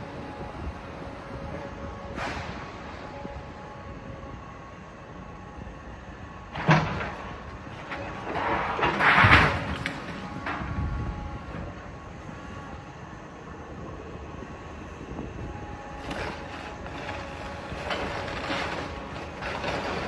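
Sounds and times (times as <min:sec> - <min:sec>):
excavator running: 0:00.0 - 0:20.0
clanks and crunches: 0:06.5 - 0:10.8, 0:16.0 - 0:20.0.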